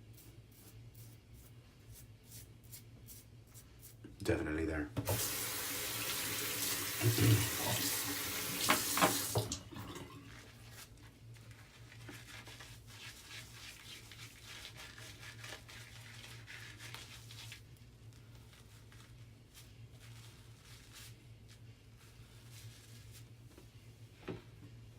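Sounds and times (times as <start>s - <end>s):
tap running into sink: 5.0s - 10.0s.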